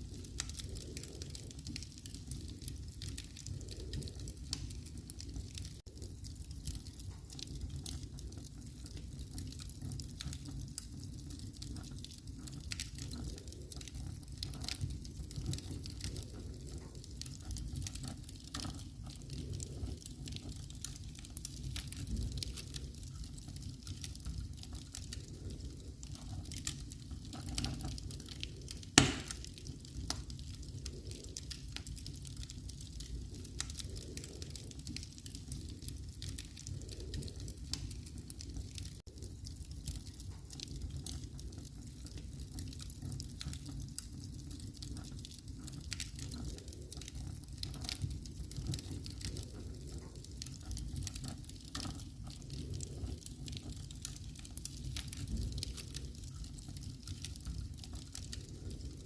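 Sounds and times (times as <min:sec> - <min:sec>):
fireplace fire crackling: 0:00.0 - 0:59.0
loud sharp fire pop: 0:29.0 - 0:29.4.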